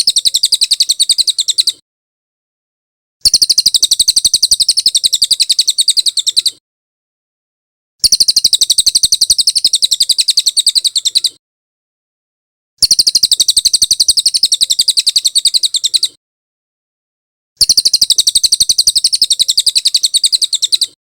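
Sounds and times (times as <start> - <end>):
fast high bird chirps: 0.0 - 1.8, 3.2 - 6.6, 8.0 - 11.4, 12.8 - 16.2, 17.6 - 21.0.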